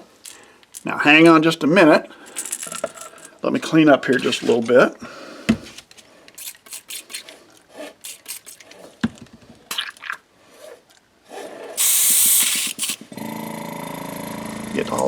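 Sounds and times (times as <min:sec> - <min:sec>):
airbrush air hiss: 0:11.8 - 0:13.0
motor hum: 0:13.1 - 0:15.0.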